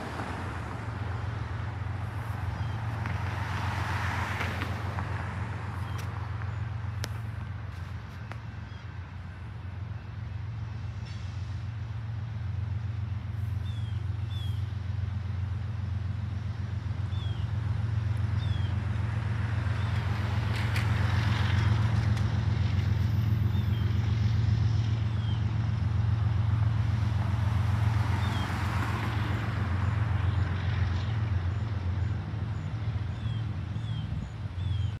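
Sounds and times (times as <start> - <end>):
train rolling past: 0.0 - 34.8.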